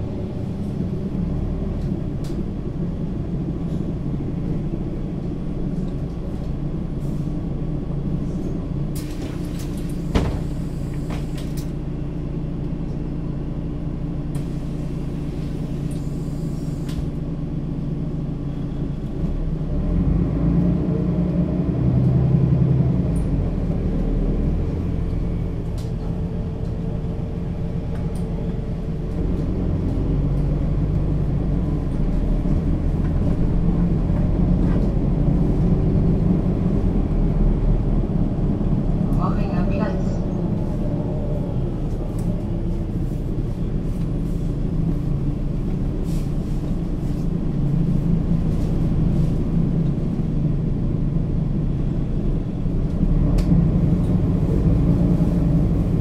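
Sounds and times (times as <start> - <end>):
bus diesel engine running: 0.0 - 56.0
short air hissing: 14.4 - 17.1.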